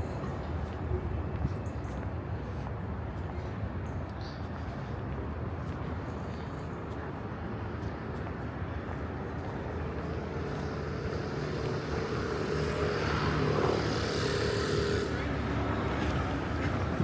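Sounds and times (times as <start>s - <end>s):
vehicle engine passing by: 9.9s - 17.0s.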